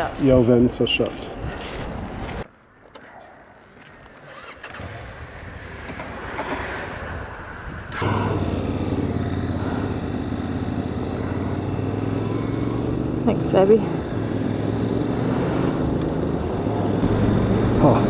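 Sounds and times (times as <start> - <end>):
motorcycle engine running: 8.0 - 18.0
motorcycle traffic noise: 8.0 - 18.0.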